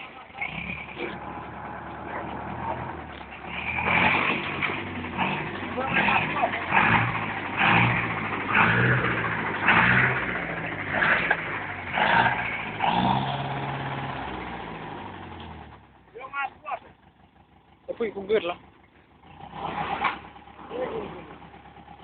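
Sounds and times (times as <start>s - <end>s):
tractor engine revving: 0.0s - 22.0s.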